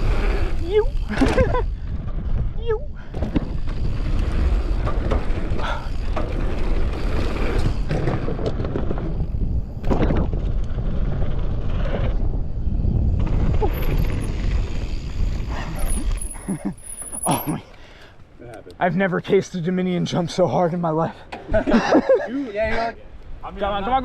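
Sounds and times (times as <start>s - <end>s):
wind on microphone: 0.0s - 16.5s
tyres rumbling on dirt: 0.0s - 17.6s
bike clacks and knocks: 3.1s - 10.7s.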